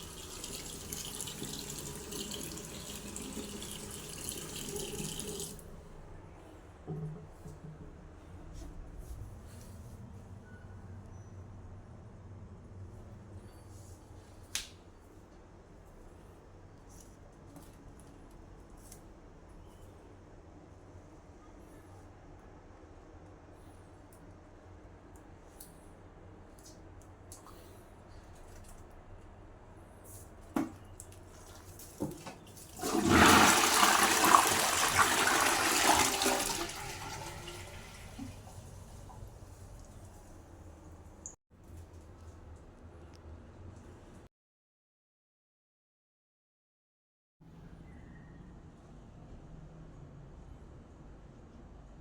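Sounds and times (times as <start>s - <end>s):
toilet flush clicks: 0.0s - 5.6s, 32.1s - 39.3s
toilet flushing rushing water: 0.0s - 5.6s, 32.2s - 40.1s.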